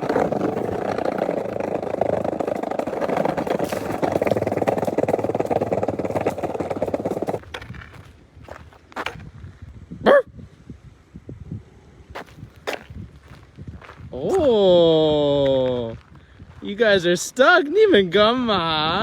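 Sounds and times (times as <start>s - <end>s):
skateboard wheels rolling on rough road: 0.0s - 9.7s, 12.2s - 15.9s.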